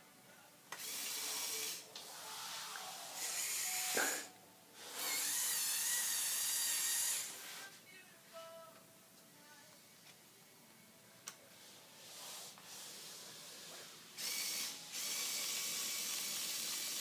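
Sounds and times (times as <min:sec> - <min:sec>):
toy electric motors whirring: 0:00.8 - 0:07.6, 0:14.2 - 0:17.0.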